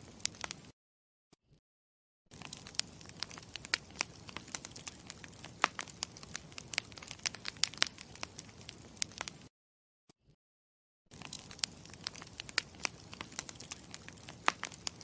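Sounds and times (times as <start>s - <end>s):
campfire crackling: 0.0s - 0.7s, 2.3s - 9.5s, 11.1s - 15.0s.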